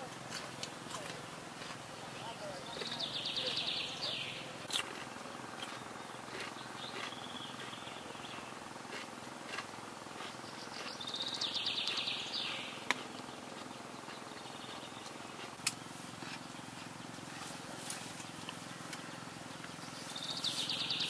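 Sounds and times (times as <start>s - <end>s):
faint background noise: 0.0s - 21.0s
bird trilling: 2.2s - 4.6s, 10.2s - 15.5s, 19.8s - 21.0s.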